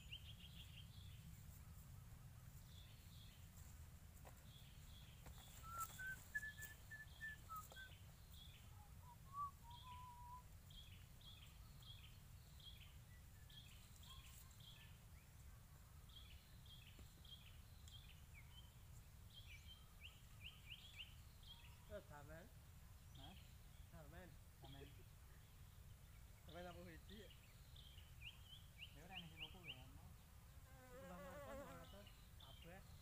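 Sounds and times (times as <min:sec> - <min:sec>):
bird chirping: 0:00.0 - 0:03.5, 0:04.4 - 0:30.6.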